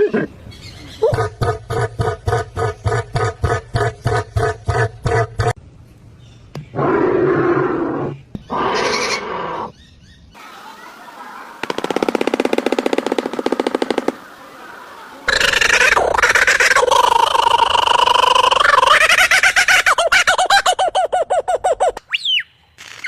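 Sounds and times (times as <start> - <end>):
low animal calls: 15.2 - 19.0.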